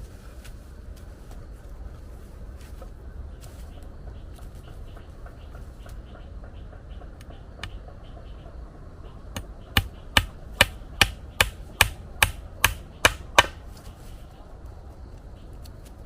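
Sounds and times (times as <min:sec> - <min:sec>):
hand tool striking: 0:09.4 - 0:13.6.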